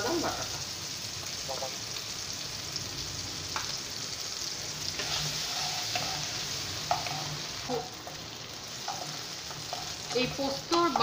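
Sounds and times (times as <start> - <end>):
paste sizzling in hot oil: 0.0 - 11.0
spatula scraping pan: 4.9 - 11.0.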